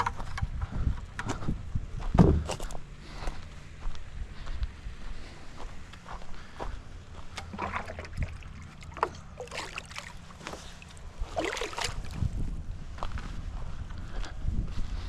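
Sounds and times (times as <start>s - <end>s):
wind noise: 0.0s - 5.4s, 10.4s - 15.0s
handling rumble: 0.0s - 15.0s
water sloshing and splashing: 7.3s - 12.5s.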